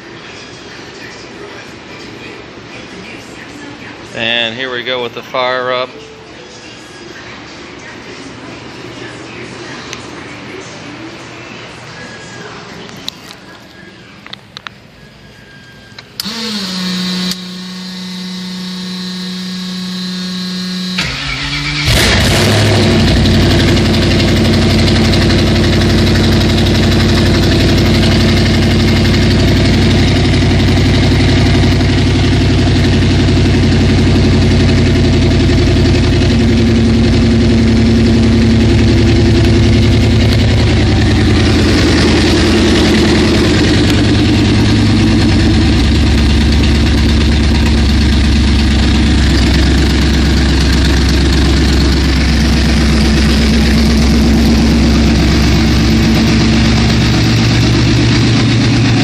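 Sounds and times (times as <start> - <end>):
starter whine: 15.8 - 59.0
car engine idling: 16.2 - 59.0.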